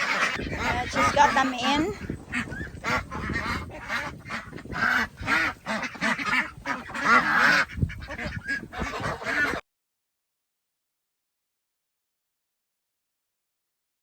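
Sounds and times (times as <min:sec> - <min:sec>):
waterfowl flock calling: 0:00.0 - 0:09.6.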